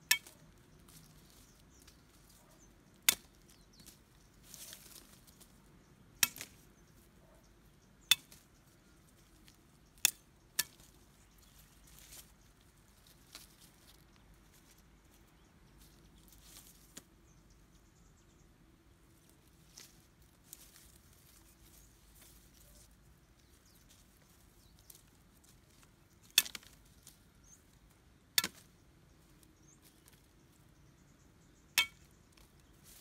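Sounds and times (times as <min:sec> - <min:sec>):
soft rustling: 0:03.5 - 0:05.8, 0:10.8 - 0:17.3, 0:19.0 - 0:27.9, 0:32.4 - 0:33.0.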